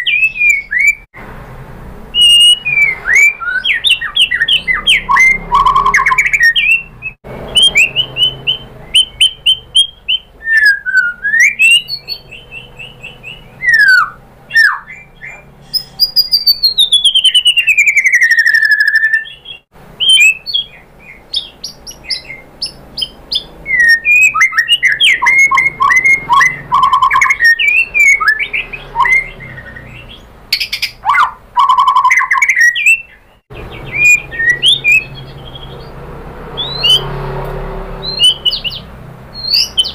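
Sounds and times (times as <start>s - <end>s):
bird singing whistles and trills: 0.0s - 1.1s, 2.2s - 35.9s, 36.6s - 37.1s, 38.0s - 39.9s
long falling bird whistle: 16.1s - 20.8s, 23.0s - 30.1s, 33.8s - 35.8s.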